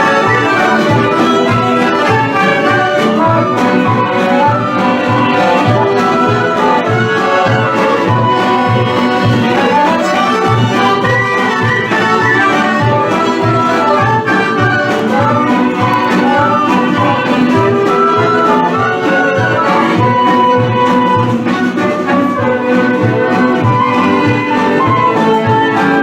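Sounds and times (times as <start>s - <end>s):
instrumental folk dance music: 0.0s - 26.0s.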